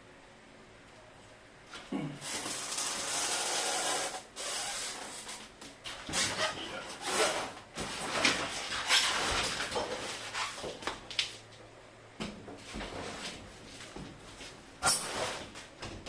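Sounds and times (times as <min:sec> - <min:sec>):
rustling and scraping of packing: 0:04.6 - 0:11.6, 0:12.5 - 0:16.0.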